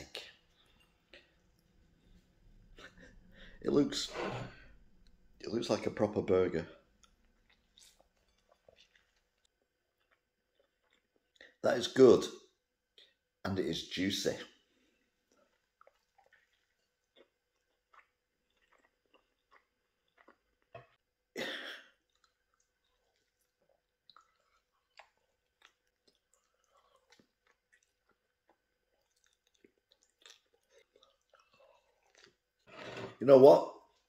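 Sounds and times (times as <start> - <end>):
wet chewing: 6.8 - 11.6, 14.8 - 21.1, 21.9 - 33.0.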